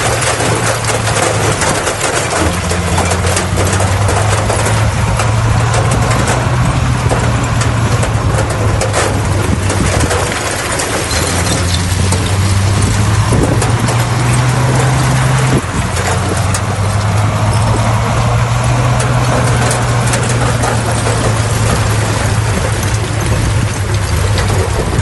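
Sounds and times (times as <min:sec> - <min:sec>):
diesel engine running: 0:00.0 - 0:25.0
metal clanks and scraping: 0:00.0 - 0:25.0.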